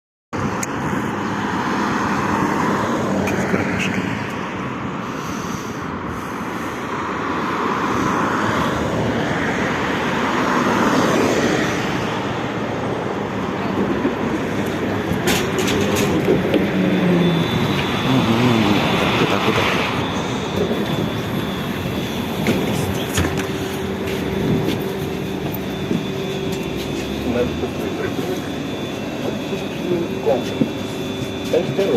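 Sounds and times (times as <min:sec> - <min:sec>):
road and body rumble: 0:00.4 - 0:31.9
electric drive whine: 0:14.4 - 0:31.9
thin high whine: 0:15.2 - 0:31.9.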